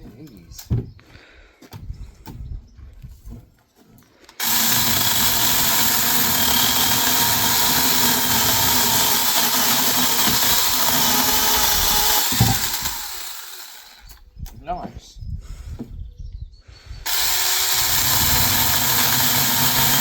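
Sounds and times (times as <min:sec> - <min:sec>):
mini chainsaw cutting branch: 0:04.4 - 0:14.2, 0:17.1 - 0:20.0.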